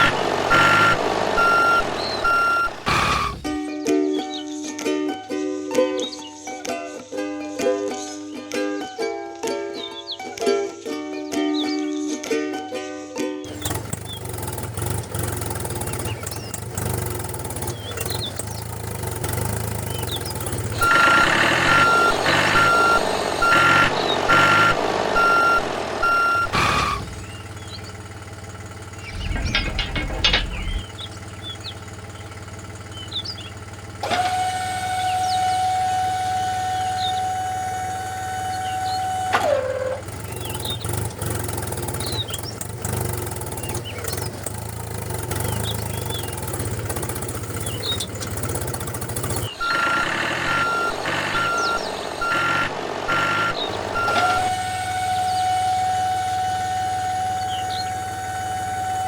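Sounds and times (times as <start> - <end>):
electronic beeps: 0.0 - 3.6, 20.8 - 27.3, 49.5 - 54.6
small motor humming: 0.0 - 3.6, 13.5 - 59.0
long horn-like tone: 34.4 - 39.3, 54.0 - 59.0.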